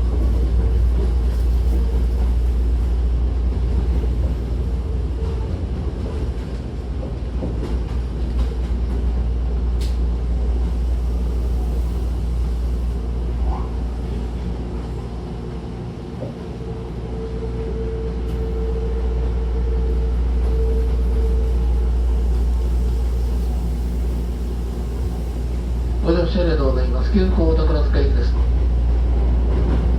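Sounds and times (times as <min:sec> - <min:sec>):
train wheels rumbling on rail: 0:00.0 - 0:29.9
brief click: 0:09.8 - 0:10.0.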